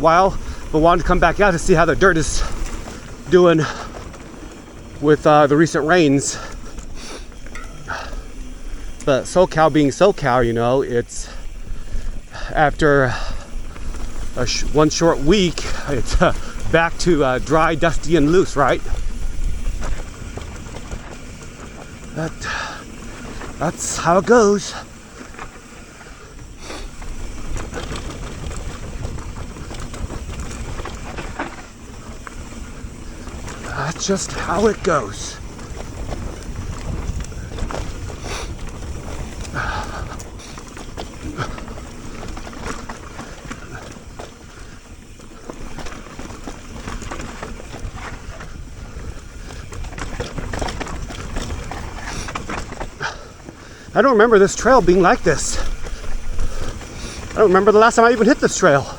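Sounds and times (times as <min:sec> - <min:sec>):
bike clicks and rattles: 0:00.0 - 0:58.9
bike tyres rumbling on dirt: 0:00.0 - 0:58.9
wind on microphone: 0:34.4 - 0:53.5.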